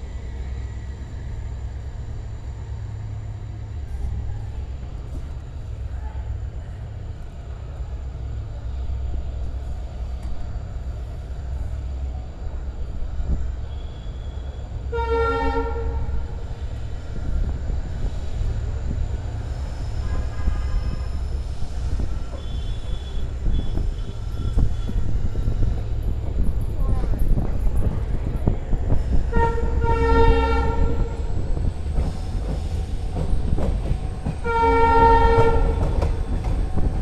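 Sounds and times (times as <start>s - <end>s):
train rumbling on rails: 0.0s - 37.0s
locomotive horn: 14.9s - 16.1s, 20.0s - 21.2s, 29.3s - 31.2s, 34.4s - 35.9s.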